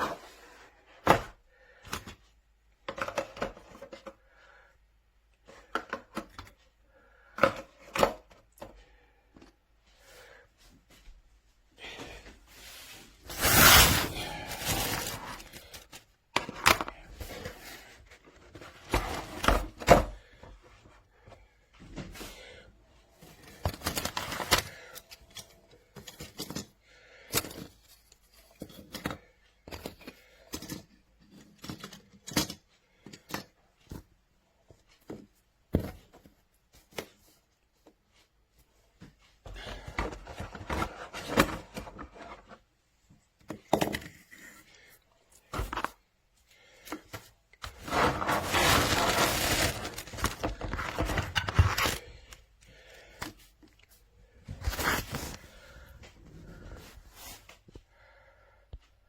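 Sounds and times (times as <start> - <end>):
rustling: 12.4 - 16.0, 47.7 - 52.3.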